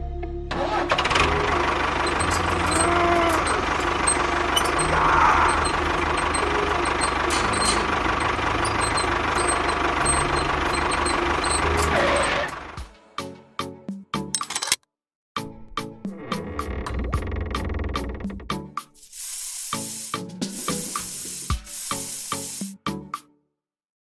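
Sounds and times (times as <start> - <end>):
small vehicle engine whine: 0.1 - 12.9.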